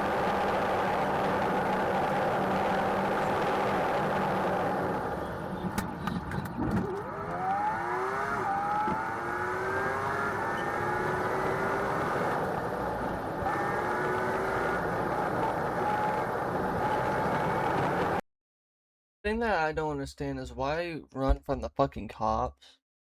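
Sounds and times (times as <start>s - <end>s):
car engine accelerating: 0.0s - 18.2s
road noise: 0.0s - 18.2s.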